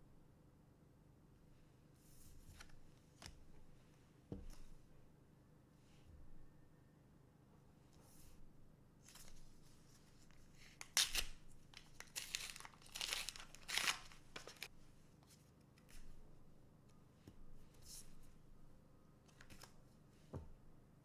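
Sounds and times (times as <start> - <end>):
card pack wrapper tearing: 10.8 - 14.7.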